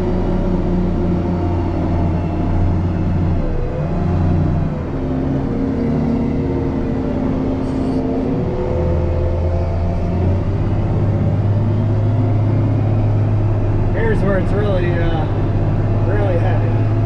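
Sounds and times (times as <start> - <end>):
heavy diesel engine under load: 0.0 - 17.0.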